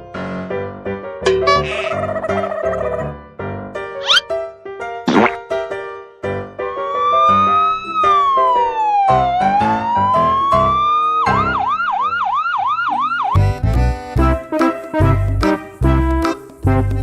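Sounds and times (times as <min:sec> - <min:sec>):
siren wailing and yelping: 0:06.8 - 0:13.4.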